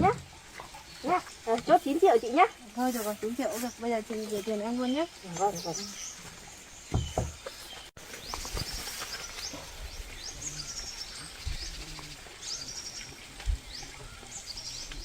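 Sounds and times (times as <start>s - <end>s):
small birds chirping: 0.0s - 15.0s
dull low thumps: 6.8s - 7.5s.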